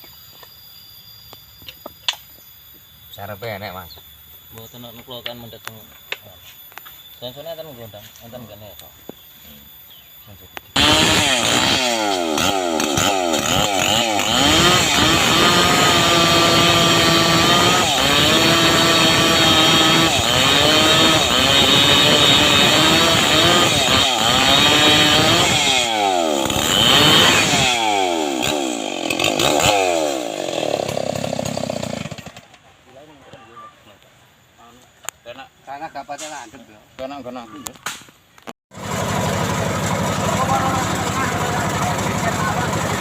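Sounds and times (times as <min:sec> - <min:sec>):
chainsaw revving: 0:10.7 - 0:32.6, 0:38.8 - 0:43.0.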